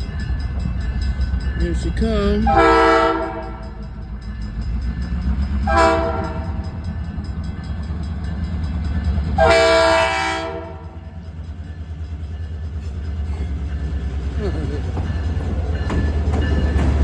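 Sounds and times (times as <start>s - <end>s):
train rumbling: 0.0s - 17.0s
locomotive air horn: 2.5s - 3.6s, 5.7s - 6.5s, 9.4s - 10.8s.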